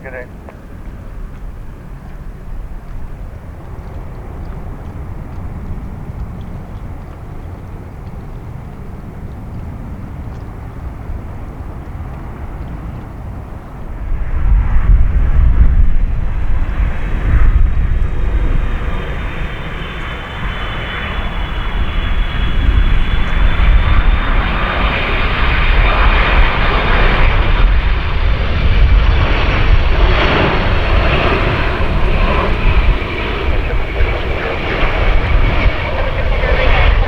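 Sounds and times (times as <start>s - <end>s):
jet engines roaring: 12.0s - 37.0s.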